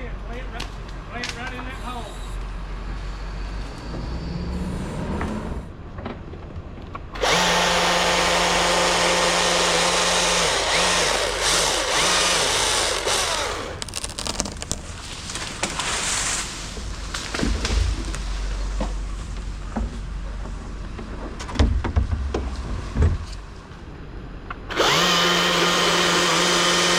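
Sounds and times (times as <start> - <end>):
chainsaw revving: 7.2 - 15.8, 24.7 - 26.9.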